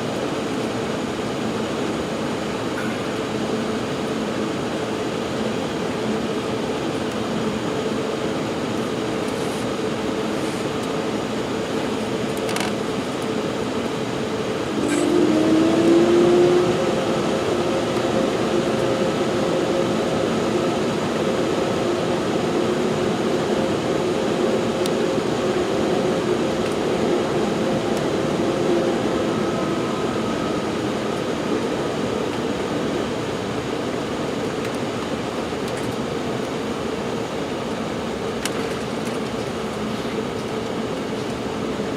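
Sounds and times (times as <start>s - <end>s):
airplane cabin rush: 0.0s - 41.9s
low humming jet engine tones: 0.0s - 41.9s.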